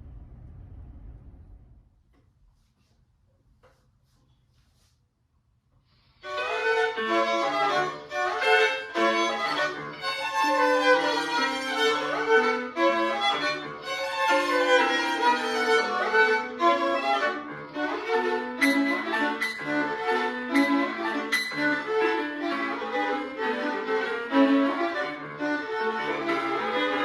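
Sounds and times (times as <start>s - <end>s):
violin: 6.2s - 27.0s
piano accompaniment: 6.3s - 27.0s.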